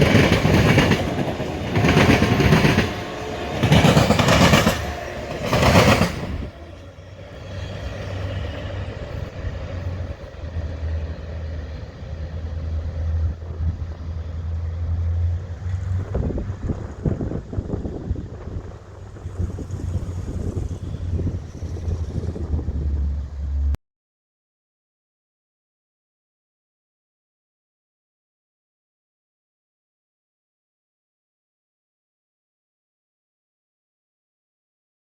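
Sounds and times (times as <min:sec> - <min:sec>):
train passing clattering: 0:00.0 - 0:23.8.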